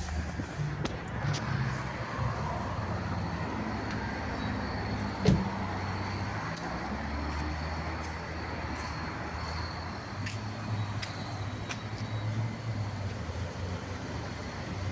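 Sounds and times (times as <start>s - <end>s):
car engine hum: 0.0s - 14.9s
road noise: 0.0s - 14.9s
thump: 5.2s - 5.5s.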